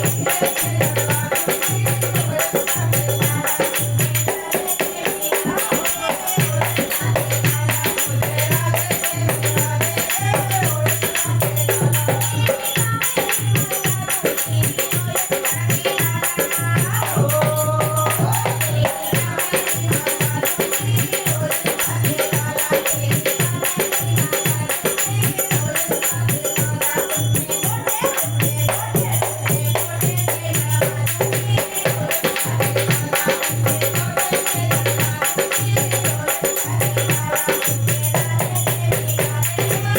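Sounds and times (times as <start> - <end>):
dholak drum beat: 0.0 - 39.9
jingling percussion: 0.0 - 39.9.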